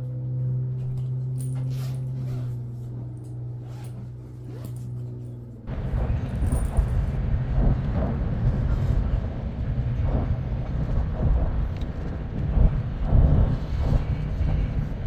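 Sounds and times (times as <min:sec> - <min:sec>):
loud low rumbling: 0:05.1 - 0:15.0.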